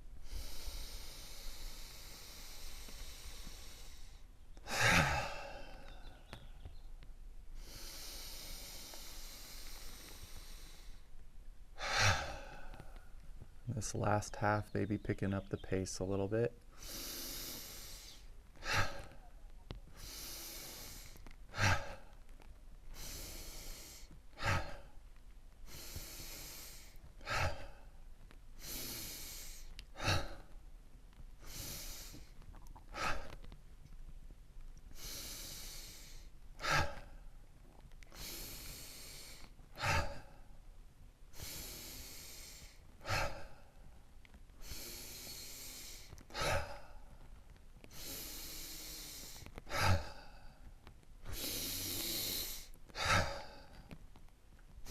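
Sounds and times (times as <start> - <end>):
person breathing in and sighing: 0.1 - 6.9, 7.6 - 11.2, 11.8 - 13.6, 16.7 - 22.2, 22.9 - 25.0, 25.6 - 30.6, 31.4 - 33.5, 34.9 - 37.3, 38.1 - 40.6, 41.3 - 43.9, 44.6 - 47.3, 47.9 - 54.0.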